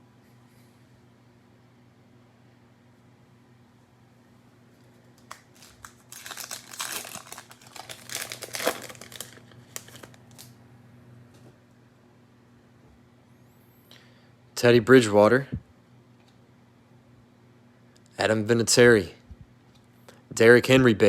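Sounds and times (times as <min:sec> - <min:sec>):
cellophane wrapper crinkling: 0:04.9 - 0:10.6.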